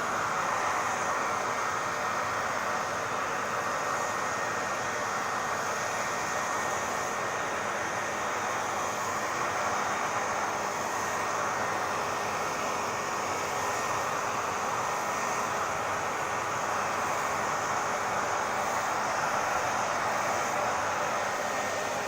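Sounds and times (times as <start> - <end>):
hair dryer running: 0.0 - 22.0.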